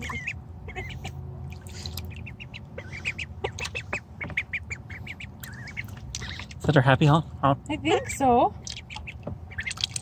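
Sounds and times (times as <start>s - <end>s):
duck honking: 0.0s - 1.2s, 2.0s - 6.6s.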